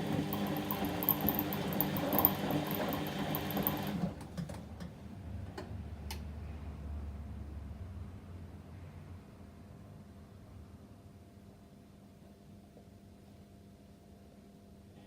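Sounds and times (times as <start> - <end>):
washing machine motor whirring: 0.0 - 4.2.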